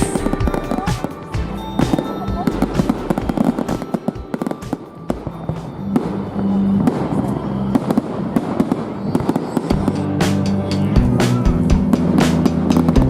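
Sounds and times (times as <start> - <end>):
background music: 0.0 - 8.8, 9.7 - 13.0
fireworks crackling and banging: 0.0 - 13.0.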